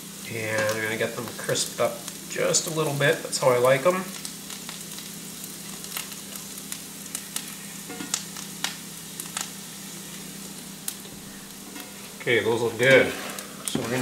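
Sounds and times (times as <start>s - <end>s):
mushrooms sizzling in butter: 0.0s - 14.0s.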